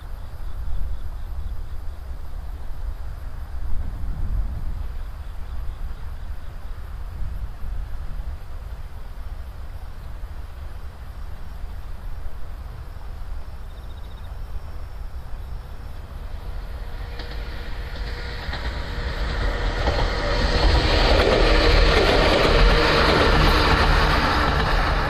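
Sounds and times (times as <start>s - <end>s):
electric train passing: 0.0s - 25.0s
wheels clattering over rail joints: 15.7s - 25.0s.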